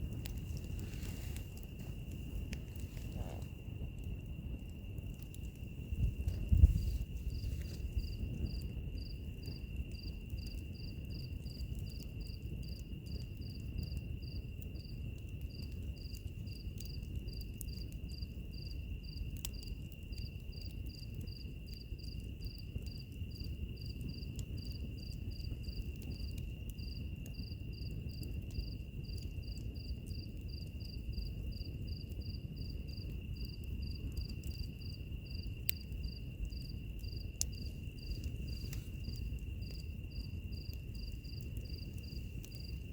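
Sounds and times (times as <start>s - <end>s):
crickets chirping: 0.0s - 42.9s
fire crackles: 0.0s - 42.9s
wood fire rumbling: 0.0s - 42.9s
high insect trill: 4.8s - 12.8s, 32.6s - 42.9s.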